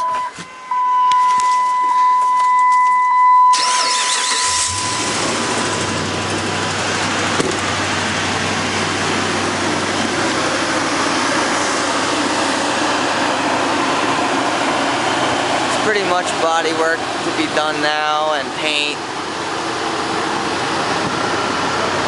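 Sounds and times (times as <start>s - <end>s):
high beep: 0.0s - 3.8s, 4.4s - 5.1s
engine idling: 3.6s - 22.0s.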